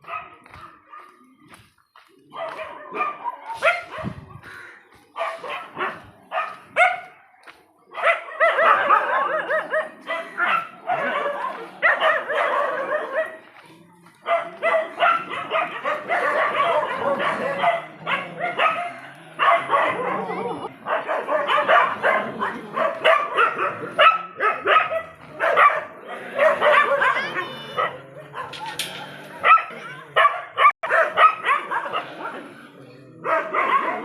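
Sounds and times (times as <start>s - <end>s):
dogs barking and yelping: 0.0s - 1.4s, 2.2s - 34.0s.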